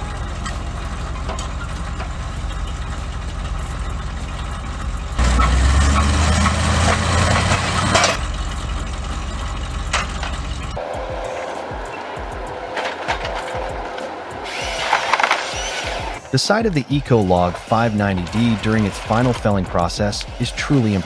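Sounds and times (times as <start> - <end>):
heavy engine running: 0.0 - 10.8.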